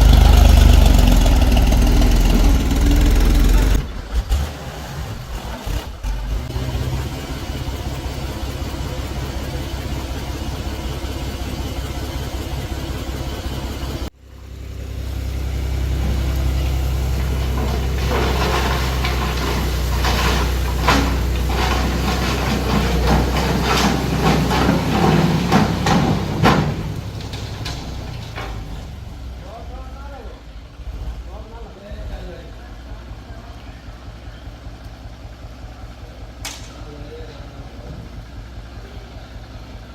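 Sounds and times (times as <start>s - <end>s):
tractor diesel engine running: 0.0s - 39.9s
sharp knocks and rattles: 15.7s - 29.4s.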